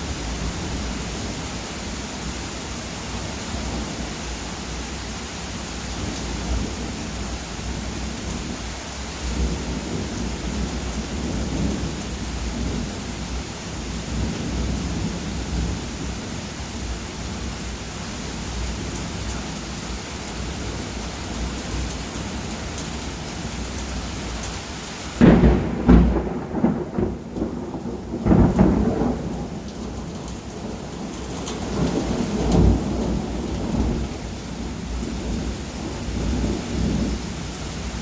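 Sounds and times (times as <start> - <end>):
steady rain: 0.0 - 38.0
thunderclap and rolling thunder: 9.2 - 16.3, 25.2 - 37.5.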